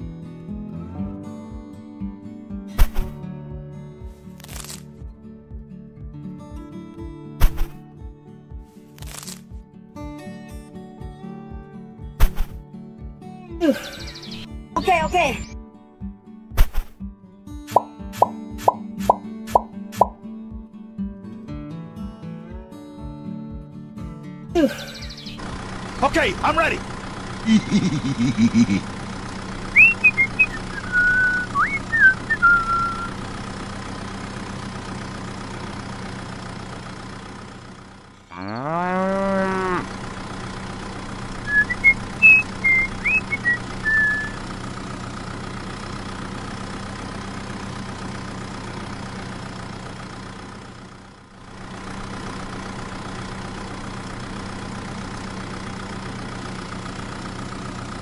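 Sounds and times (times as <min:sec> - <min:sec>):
birds chirping: 0:13.6 - 0:15.6, 0:24.6 - 0:26.9, 0:29.7 - 0:33.2, 0:41.4 - 0:44.4
cow mooing: 0:38.3 - 0:40.0
steady motor hum: 0:39.1 - 0:47.0.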